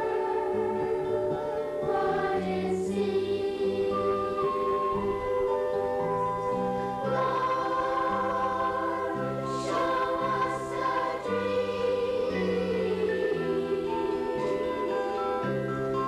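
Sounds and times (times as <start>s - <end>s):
accompaniment with held bass notes: 0.0s - 16.0s
youth choir singing: 0.0s - 16.0s.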